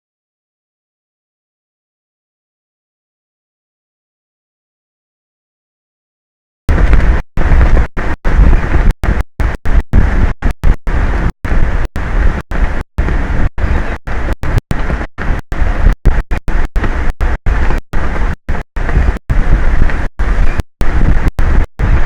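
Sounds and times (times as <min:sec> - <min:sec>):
strong wind buffeting microphone: 0:06.7 - 0:22.0.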